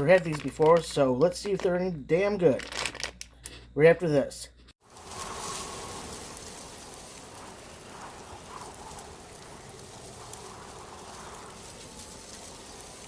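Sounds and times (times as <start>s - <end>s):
steady hiss: 4.8s - 13.0s.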